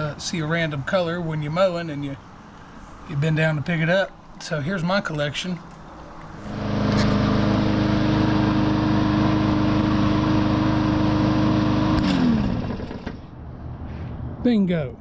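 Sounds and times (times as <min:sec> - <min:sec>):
motor running and winding down: 0:06.5 - 0:13.3.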